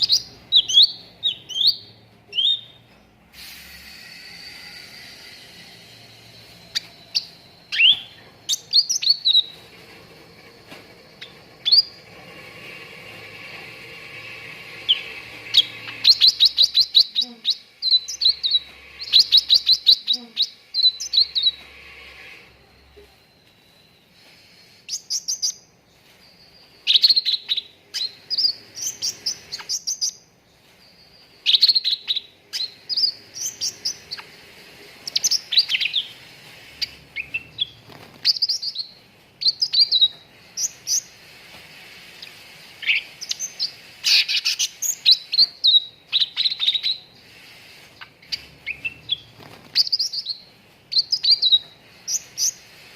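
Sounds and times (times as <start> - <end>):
songbird chirping and whistling: 0.0 - 3.0, 3.8 - 9.7, 11.0 - 12.0, 14.2 - 41.4, 42.2 - 52.8.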